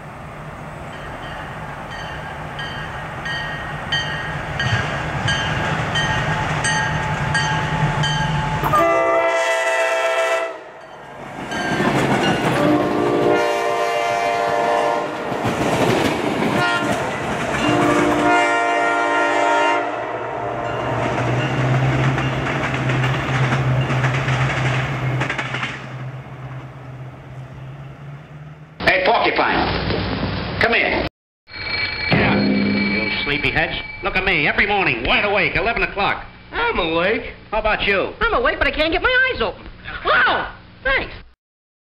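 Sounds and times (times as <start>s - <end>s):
locomotive air horn blasts: 8.6s - 10.8s, 12.6s - 15.3s, 16.6s - 20.9s
wheels clattering over rail joints: 21.0s - 26.6s.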